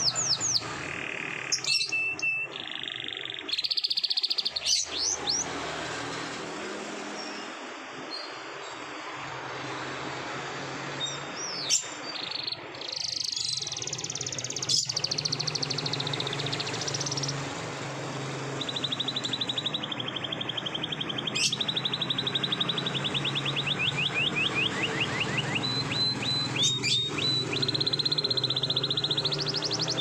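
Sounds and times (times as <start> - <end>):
canary singing trills: 0.0 - 6.3, 10.9 - 30.0.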